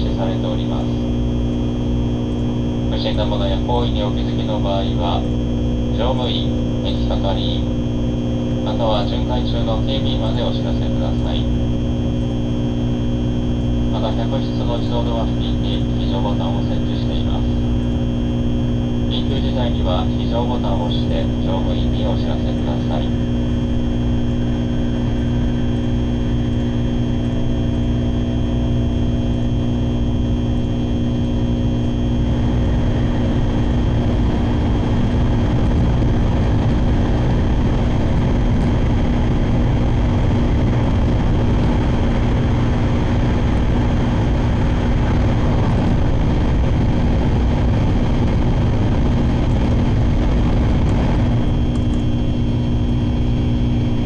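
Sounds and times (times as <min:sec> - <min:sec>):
train motor hum: 0:49.3 - 0:54.0.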